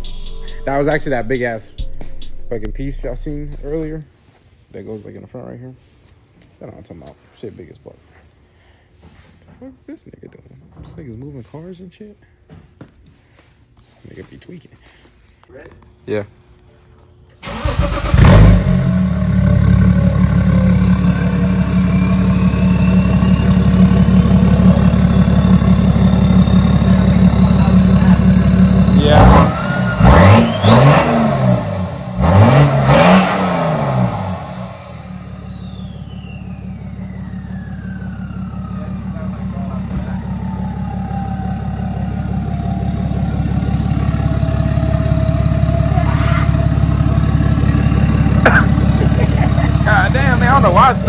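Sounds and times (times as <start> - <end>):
diesel engine idling: 0.0 - 4.0, 17.4 - 51.0
faint high turbo whistle: 0.0 - 4.0, 19.4 - 33.3, 33.9 - 48.9.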